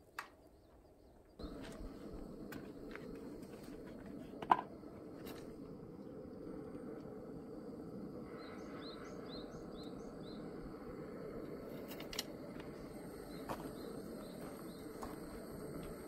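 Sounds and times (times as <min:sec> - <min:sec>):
bird chirping: 0:08.3 - 0:10.6.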